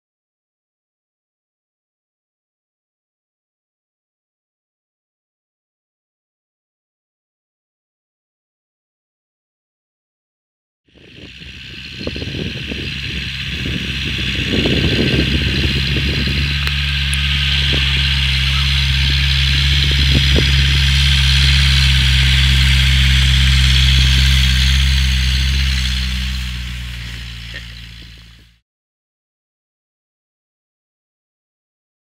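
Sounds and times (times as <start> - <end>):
car engine running: 10.9 - 28.6
hissing rush: 11.0 - 28.6.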